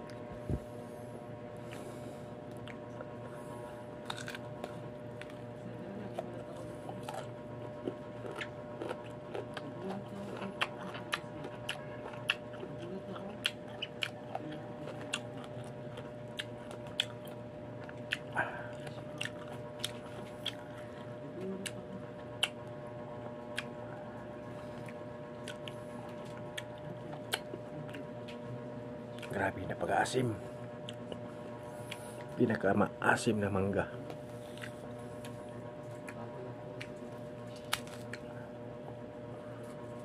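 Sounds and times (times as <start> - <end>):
crisp crunches of chewing: 1.6 - 22.8, 24.6 - 28.4, 34.3 - 36.2, 36.8 - 38.6.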